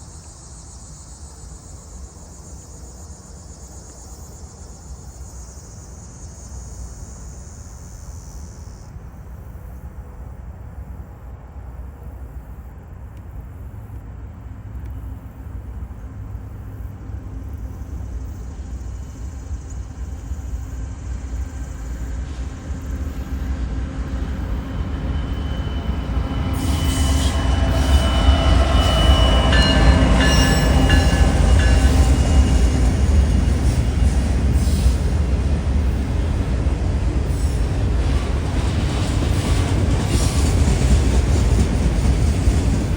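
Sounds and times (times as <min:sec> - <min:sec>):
diesel locomotive engine drone: 0:00.0 - 0:42.9
train wheels squealing on rails: 0:14.9 - 0:42.9.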